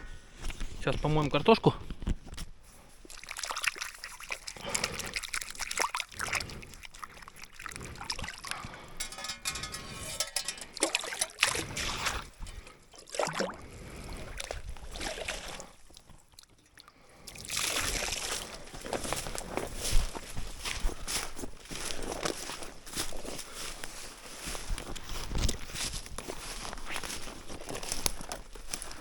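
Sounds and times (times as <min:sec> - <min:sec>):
water splashing and trickling: 0:02.8 - 0:23.7.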